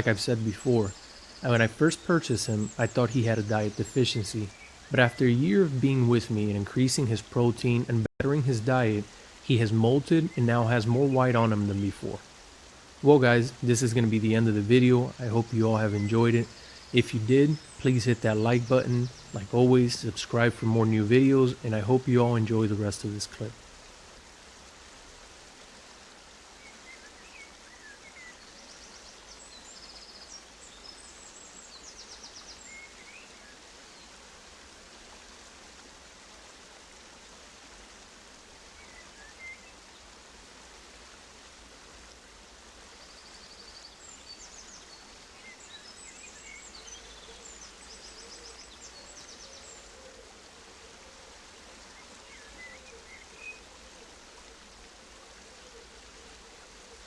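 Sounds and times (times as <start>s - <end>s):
small birds chirping: 0.0s - 25.3s, 26.6s - 34.1s, 43.0s - 50.2s, 51.4s - 54.3s
running water rushing: 0.0s - 57.0s.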